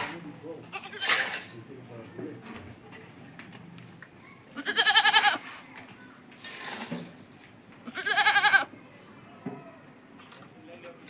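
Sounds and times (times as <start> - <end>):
goat bleating: 0.7 - 1.2, 4.6 - 5.4, 7.8 - 8.7.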